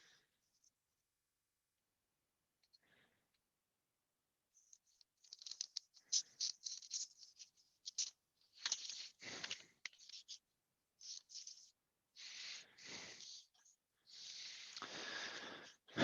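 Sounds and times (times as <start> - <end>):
paper rustling and crinkling: 4.6 - 10.4.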